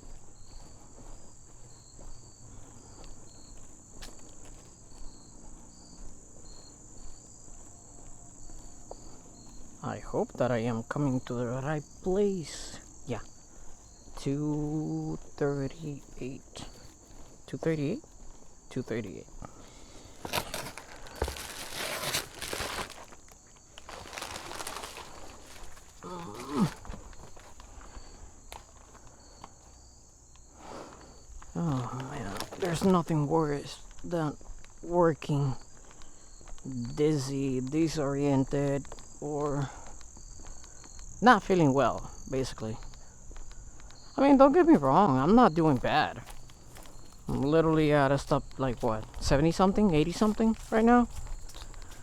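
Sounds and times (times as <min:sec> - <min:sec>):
crickets trilling: 0:00.0 - 0:52.0
insects chirping: 0:00.0 - 0:52.0
material crinkling and rustling: 0:20.1 - 0:27.5, 0:32.3 - 0:33.0.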